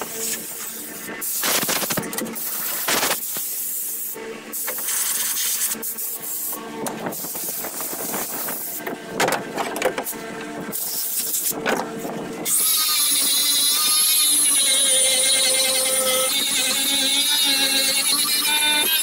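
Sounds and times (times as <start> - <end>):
power grinder grinding: 12.4 - 19.0.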